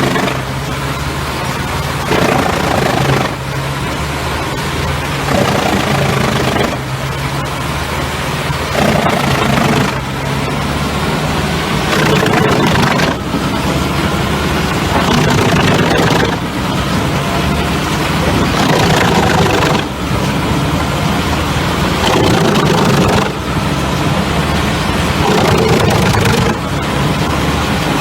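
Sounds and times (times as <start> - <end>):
logs being chipped: 0.0 - 3.5, 5.1 - 7.1
diesel engine running: 0.0 - 28.0.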